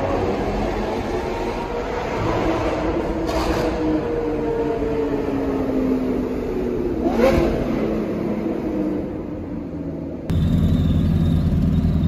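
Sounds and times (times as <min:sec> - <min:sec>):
car engines echoing in tunnel: 0:00.0 - 0:12.0.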